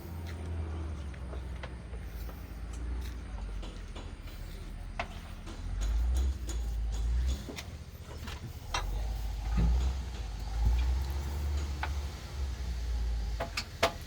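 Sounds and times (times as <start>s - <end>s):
diesel engine rumbling: 0.0s - 14.0s
light metallic clicks and knocks: 2.7s - 12.3s.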